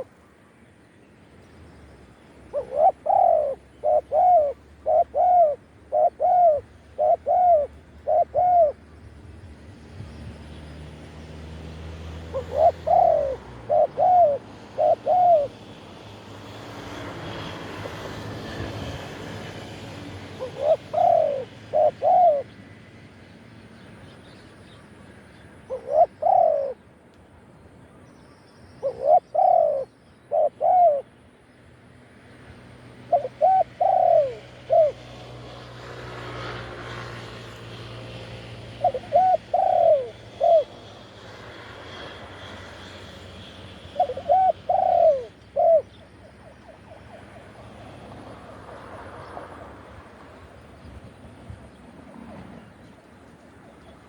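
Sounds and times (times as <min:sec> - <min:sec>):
dove cooing: 0:02.5 - 0:08.9, 0:12.2 - 0:15.8, 0:16.5 - 0:22.6, 0:25.7 - 0:26.8, 0:28.8 - 0:31.1, 0:33.0 - 0:35.4, 0:38.5 - 0:41.0, 0:43.8 - 0:48.1.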